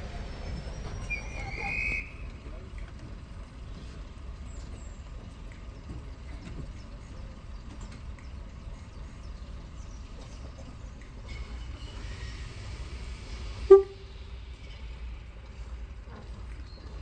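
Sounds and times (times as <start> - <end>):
locomotive steam hissing: 6.1 - 16.7
short loud whistle toot: 13.7 - 14.0.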